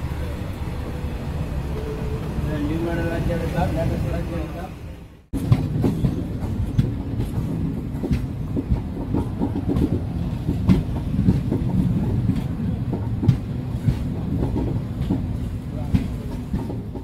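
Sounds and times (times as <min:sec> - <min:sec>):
low rumble of train coaches: 0:00.0 - 0:17.0
wheels clicking over rail joints: 0:05.4 - 0:17.0.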